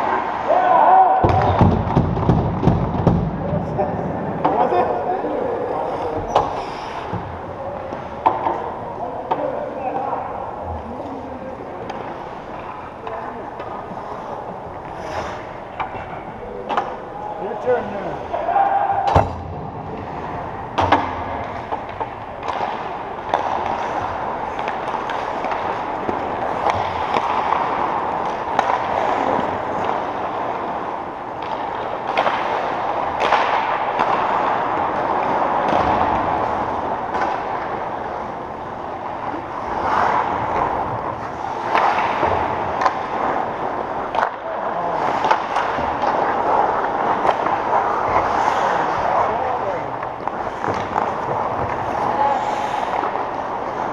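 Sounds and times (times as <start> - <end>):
sharp knocks of sticks and puck: 7.9 - 8.7, 15.8 - 17.0, 18.9 - 37.9, 39.8 - 48.5, 49.4 - 51.9.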